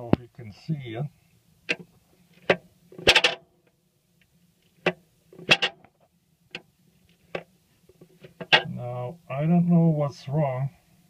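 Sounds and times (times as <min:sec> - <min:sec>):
tractor clutch clicks and clunks: 0:01.7 - 0:03.4, 0:04.6 - 0:08.7.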